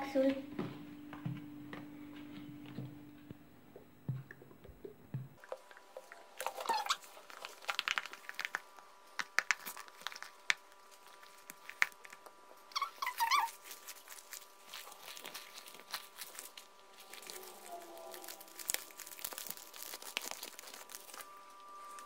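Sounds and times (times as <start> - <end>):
slime squelching: 4.1 - 22.0
wavering squeaks: 6.5 - 7.2, 12.7 - 13.6, 17.0 - 19.2.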